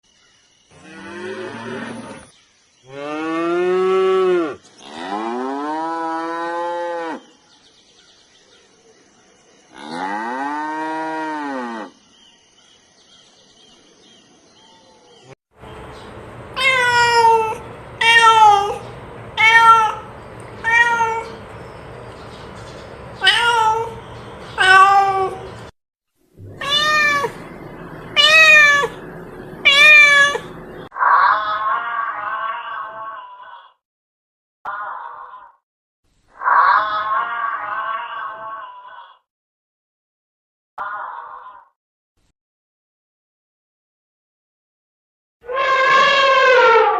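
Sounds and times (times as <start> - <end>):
cow mooing: 0.7 - 2.3, 2.9 - 7.3, 9.7 - 11.9
cat meowing: 16.6 - 18.8, 19.4 - 21.4, 23.2 - 24.0, 24.6 - 25.5, 26.4 - 27.4, 28.2 - 29.0, 29.6 - 33.4, 36.4 - 38.9.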